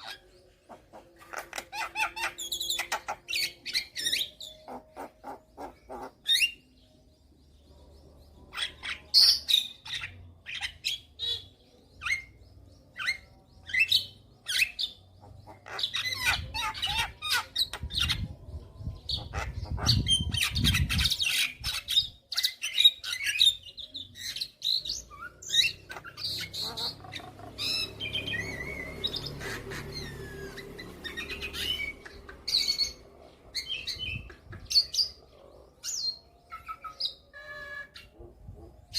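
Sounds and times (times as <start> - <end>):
bird harsh chirps and squawks: 0.0 - 6.8, 8.3 - 38.9.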